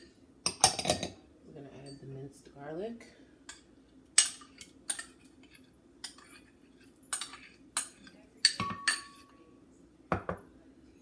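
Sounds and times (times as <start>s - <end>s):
spoon clinking against a bowl: 3.5s - 9.4s.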